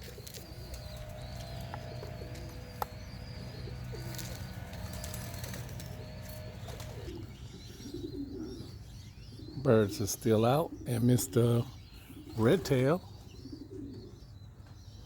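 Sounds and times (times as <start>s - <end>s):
steady low rumble: 0.0s - 7.6s
bird chirps: 0.0s - 15.0s
pigeons cooing: 0.0s - 15.0s.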